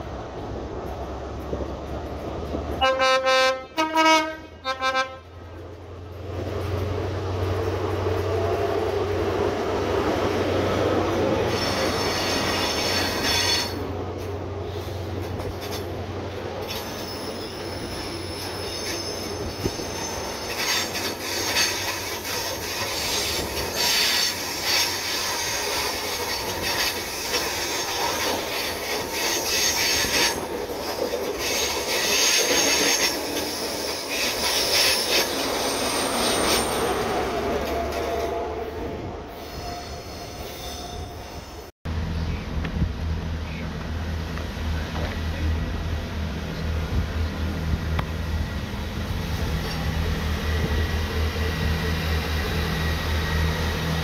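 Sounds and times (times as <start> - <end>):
train engine drone: 0.0 - 54.0
train horn blasts: 2.8 - 5.3
train wheels squealing: 11.4 - 13.8, 16.6 - 41.7.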